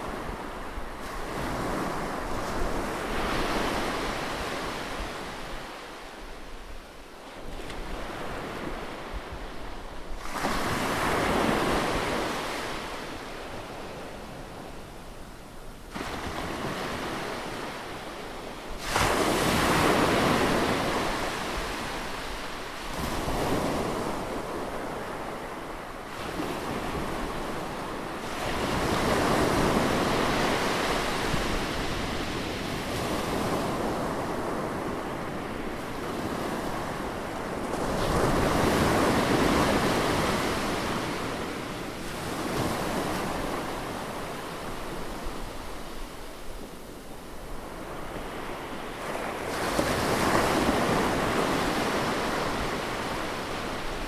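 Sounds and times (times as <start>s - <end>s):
sea waves washing onto shore: 15.9s - 54.0s.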